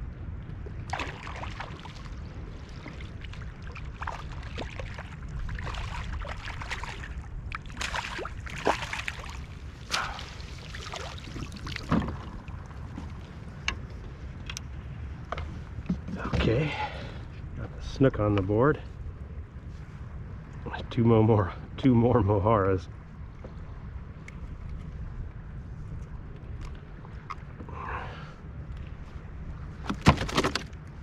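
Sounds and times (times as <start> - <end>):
steady low rumble: 0.0 - 31.0
water splashing and dripping: 0.9 - 12.7
knocks on kayak: 29.9 - 30.7.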